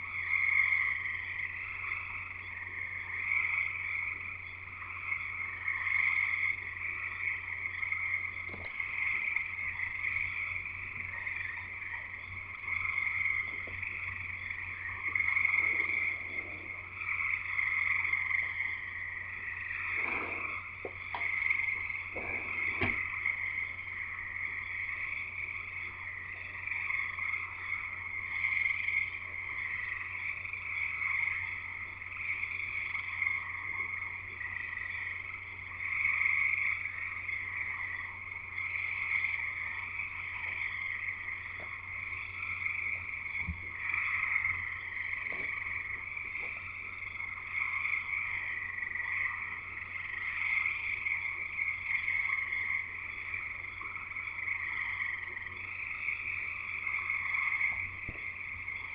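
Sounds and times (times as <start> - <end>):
frogs calling in chorus: 0.0 - 58.9.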